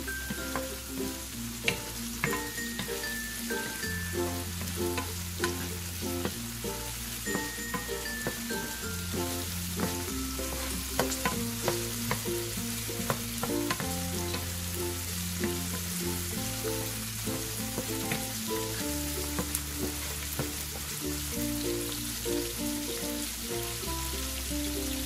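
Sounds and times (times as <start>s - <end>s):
background music: 0.0s - 25.0s
food sizzling in oil: 0.0s - 25.0s
wooden spoon scraping pan: 9.4s - 12.2s.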